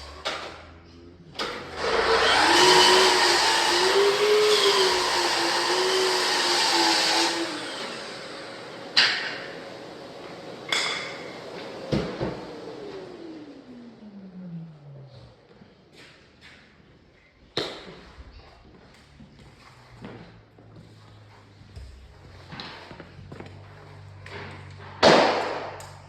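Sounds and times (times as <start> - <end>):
electric power tool running: 1.4 - 10.6.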